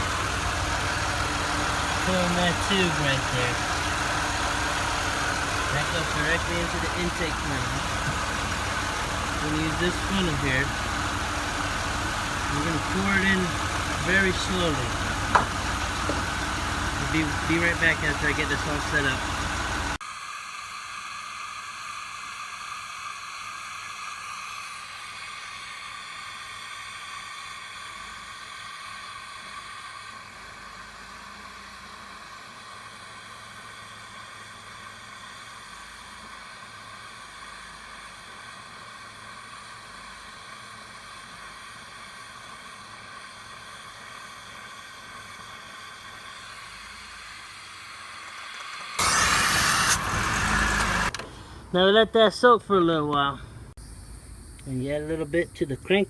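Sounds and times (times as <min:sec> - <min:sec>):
steady hiss: 0:51.7 - 0:56.0.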